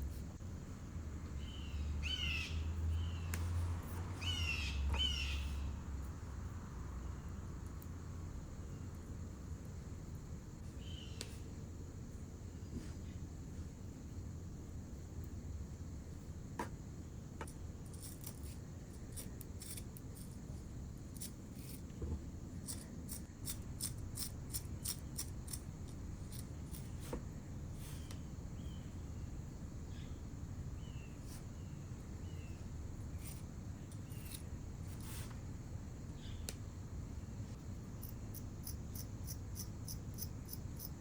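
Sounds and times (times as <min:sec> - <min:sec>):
tools and fingers working clay: 0:17.4 - 0:22.0, 0:22.6 - 0:27.2, 0:33.1 - 0:35.4, 0:38.0 - 0:41.0.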